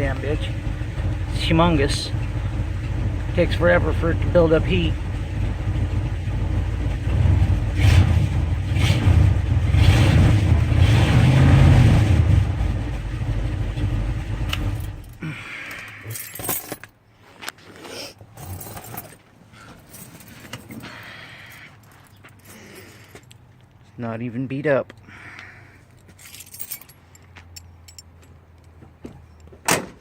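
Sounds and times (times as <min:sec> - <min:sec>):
truck engine idling: 0:00.0 - 0:07.7.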